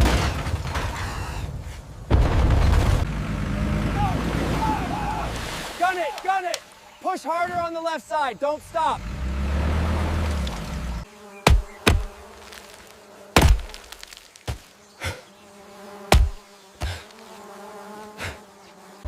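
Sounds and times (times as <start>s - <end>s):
steady buzz: 10.5s - 19.0s
sharp knocks: 11.4s - 12.2s, 13.4s - 14.6s, 16.1s - 17.0s.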